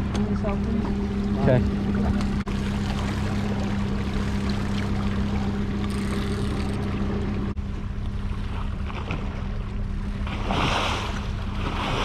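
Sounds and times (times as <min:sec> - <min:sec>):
outboard motor humming: 0:00.0 - 0:12.0
water noise: 0:00.0 - 0:12.0
wind: 0:00.0 - 0:12.0.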